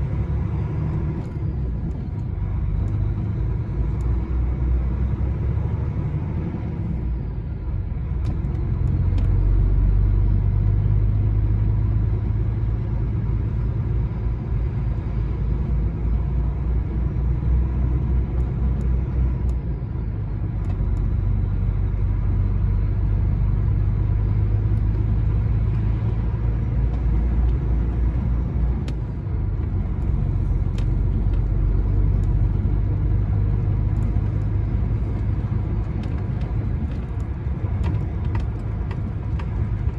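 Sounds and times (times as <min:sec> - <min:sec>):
lorry diesel engine and tyres: 0:00.0 - 0:39.9.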